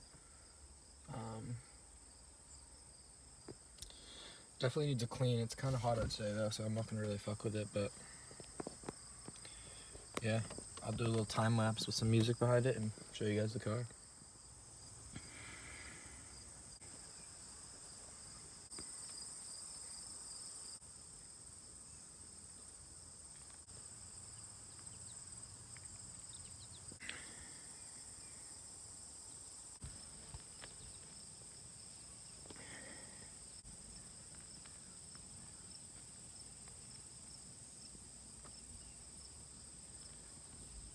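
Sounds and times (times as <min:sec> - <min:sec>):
high-pitched insect chorus: 0:06.2 - 0:37.9.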